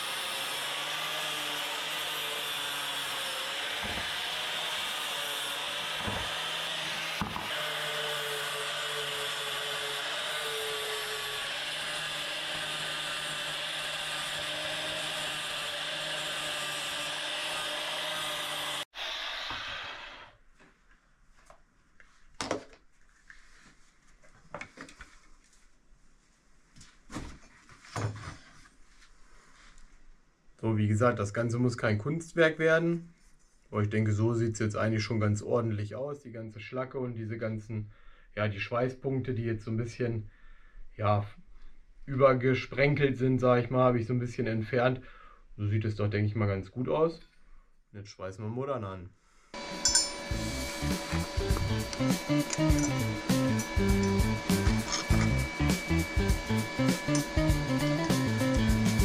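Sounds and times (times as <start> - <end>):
angle grinder grinding steel: 0.0 - 20.4, 49.6 - 59.0.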